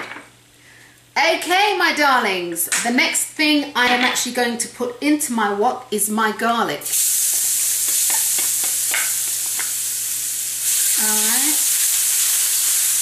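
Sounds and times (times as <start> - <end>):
garlic sizzling in hot oil: 6.8 - 13.0.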